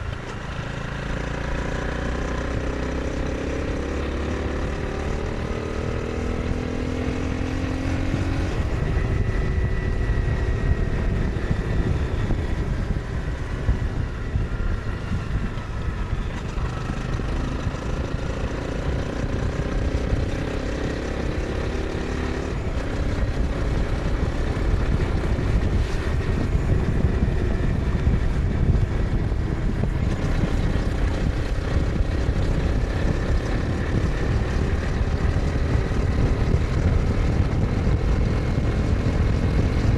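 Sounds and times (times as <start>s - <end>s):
motorcycle engine revving: 0.0s - 39.9s
wind rumble: 0.0s - 39.9s.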